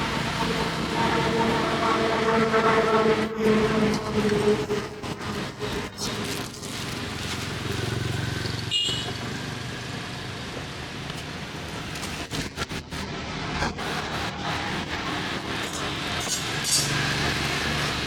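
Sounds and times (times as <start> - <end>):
motorbikes and cars passing: 0.0 - 18.0.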